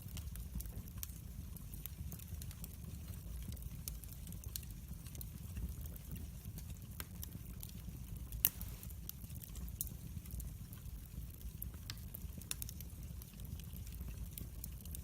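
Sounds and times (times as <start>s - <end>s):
fire crackling and popping: 0.0s - 15.0s
low rumble of flames: 0.0s - 15.0s.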